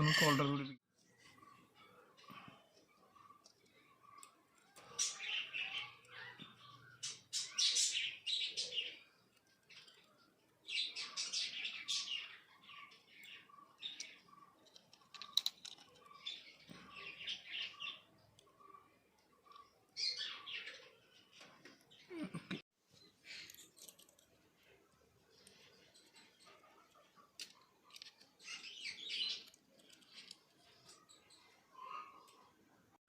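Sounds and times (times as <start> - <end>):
birds chirping and twittering: 0.0 - 33.0.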